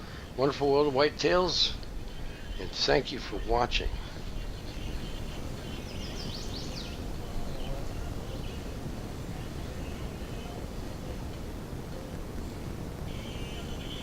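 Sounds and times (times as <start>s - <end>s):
low background noise: 0.0s - 14.0s
high bird chirps: 4.3s - 8.6s.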